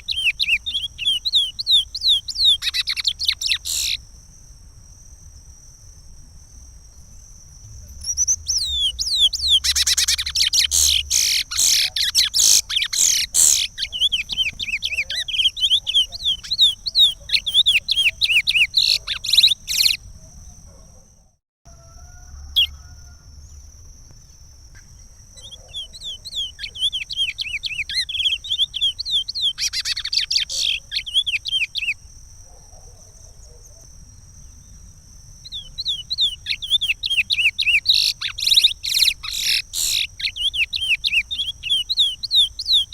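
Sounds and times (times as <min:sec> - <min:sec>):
finch whistled song: 0:00.0 - 0:04.0, 0:08.0 - 0:20.0, 0:25.4 - 0:32.0, 0:35.5 - 0:42.9.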